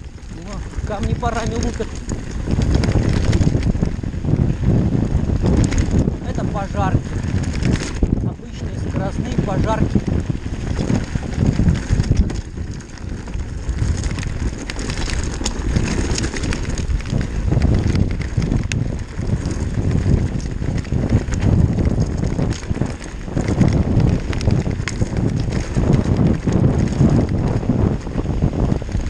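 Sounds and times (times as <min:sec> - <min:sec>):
bike parts clicking and knocking: 0:00.0 - 0:03.9, 0:10.0 - 0:27.7
tyres rumbling over wet stones: 0:00.0 - 0:29.0
wind on microphone: 0:00.0 - 0:29.0.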